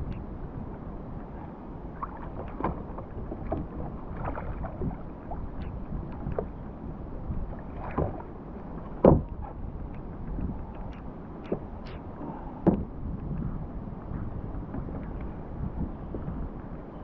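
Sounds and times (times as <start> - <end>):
low rumble of wind and water: 0.0 - 17.0
small knocks on kayak: 2.4 - 4.4, 7.8 - 8.2, 8.9 - 9.4, 12.6 - 12.9.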